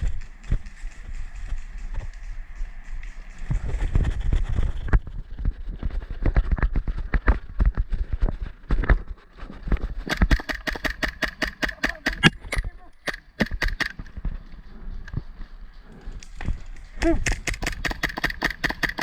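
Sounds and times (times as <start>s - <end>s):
running footsteps: 0.0s - 19.0s
rapid sharp clicks: 10.0s - 14.2s, 16.2s - 19.0s.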